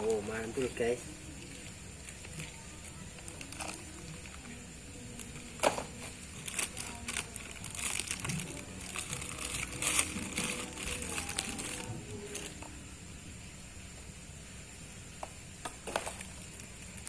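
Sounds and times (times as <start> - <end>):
packaging rustling and crinkling: 1.5 - 12.6, 15.8 - 17.0.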